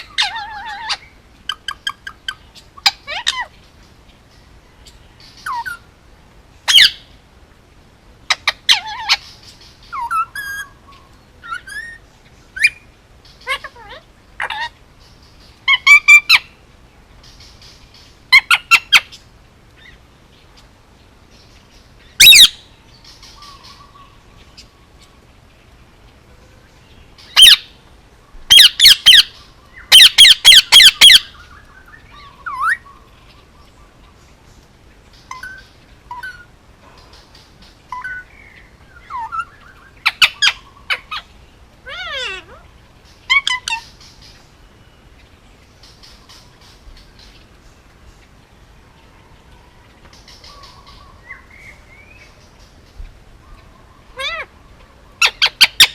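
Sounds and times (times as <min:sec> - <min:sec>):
parakeet squawking: 0:00.0 - 0:03.5, 0:08.3 - 0:09.3, 0:09.9 - 0:10.8, 0:13.4 - 0:14.8, 0:15.7 - 0:16.5, 0:22.2 - 0:22.6, 0:27.4 - 0:27.7, 0:28.5 - 0:31.4, 0:39.0 - 0:42.6, 0:43.2 - 0:44.0, 0:54.2 - 0:54.5, 0:55.2 - 0:55.9
parakeet chirps and whistles: 0:09.9 - 0:10.8, 0:22.2 - 0:22.6, 0:29.9 - 0:31.3.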